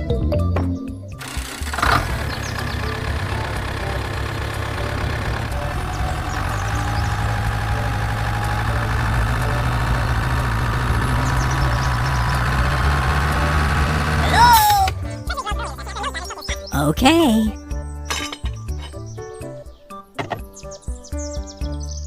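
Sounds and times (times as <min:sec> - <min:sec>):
motor humming: 0:01.2 - 0:15.0.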